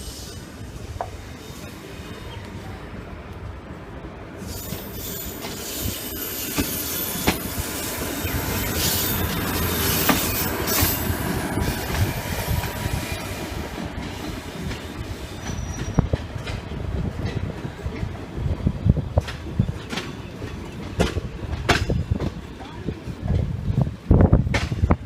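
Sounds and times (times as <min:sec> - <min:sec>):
train wheels squealing on rails: 0:00.0 - 0:02.8, 0:04.4 - 0:16.9
train rumble: 0:00.0 - 0:25.0.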